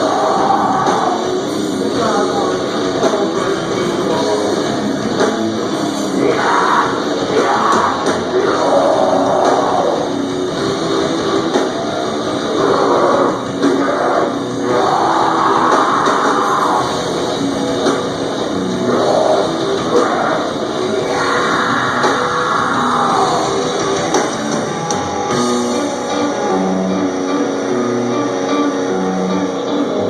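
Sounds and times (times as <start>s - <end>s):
harsh vocals: 0.0s - 10.5s, 11.4s - 24.8s
bass guitar: 0.0s - 30.0s
distorted electric guitars: 0.0s - 30.0s
drum kit: 0.0s - 30.0s.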